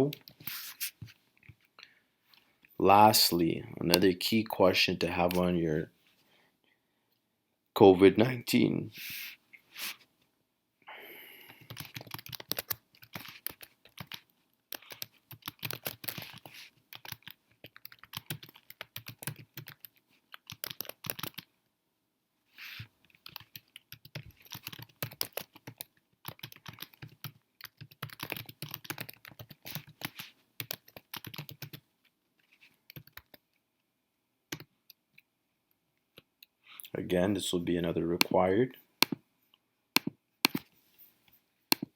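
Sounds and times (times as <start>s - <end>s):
typing on computer keyboard: 11.6s - 21.5s, 23.2s - 31.8s, 32.9s - 33.4s, 40.0s - 40.7s.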